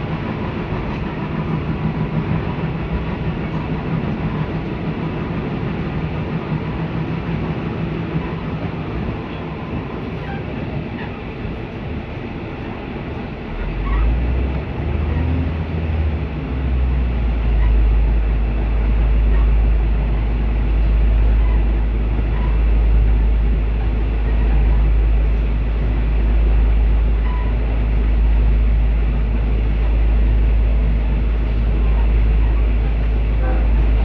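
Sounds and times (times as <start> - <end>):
passenger train rumble: 0.0 - 34.0.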